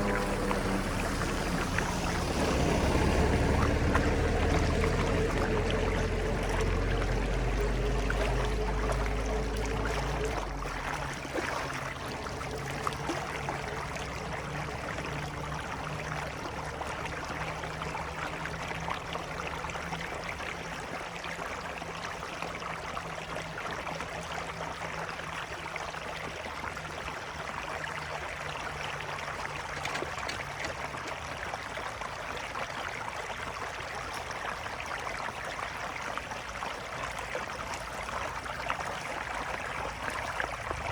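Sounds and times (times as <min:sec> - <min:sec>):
low hum: 0:00.0 - 0:20.6
water running: 0:00.0 - 0:21.5, 0:26.5 - 0:34.9.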